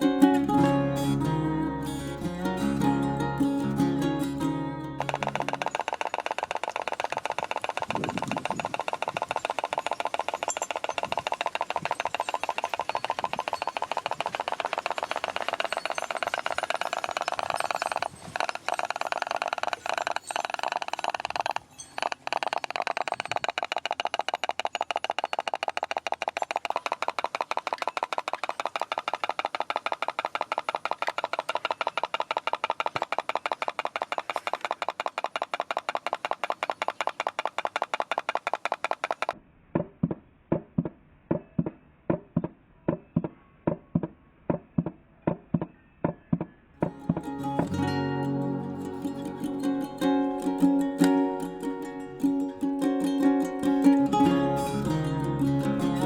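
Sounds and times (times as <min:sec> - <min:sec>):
pop-pop boat engine popping: 0:00.0 - 0:10.4, 0:46.8 - 0:56.0.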